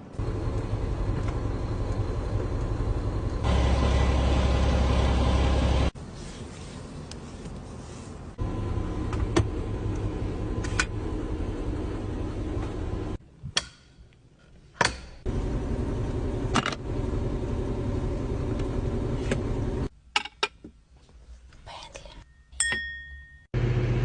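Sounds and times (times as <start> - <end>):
tractor diesel engine running: 0.1 - 6.0, 15.3 - 19.9.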